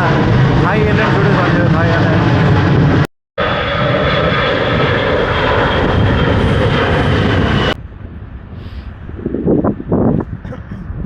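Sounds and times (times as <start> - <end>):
jet engines roaring with whine: 0.0 - 11.0.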